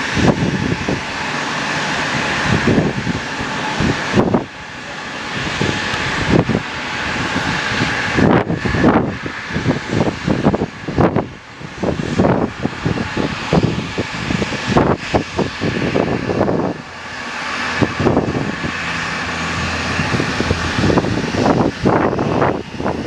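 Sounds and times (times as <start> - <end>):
aircraft engine hiss: 0.0 - 23.0
wind buffeting microphone: 0.0 - 23.0.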